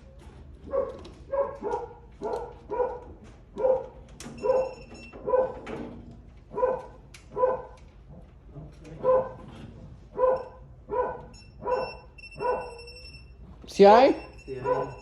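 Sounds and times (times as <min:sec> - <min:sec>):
dog barking: 0:00.6 - 0:05.7, 0:06.5 - 0:12.9, 0:14.6 - 0:15.0.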